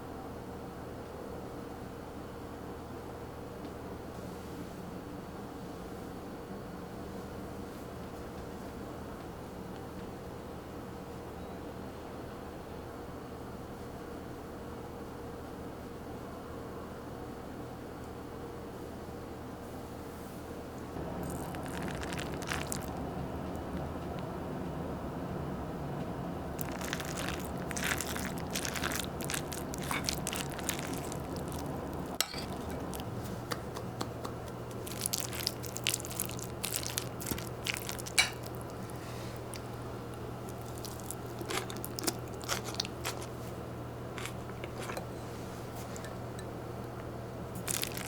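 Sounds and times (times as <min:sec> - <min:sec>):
person crunching food: 0:21.2 - 0:24.0, 0:26.6 - 0:33.2, 0:34.7 - 0:43.5, 0:44.1 - 0:45.0, 0:47.6 - 0:48.0.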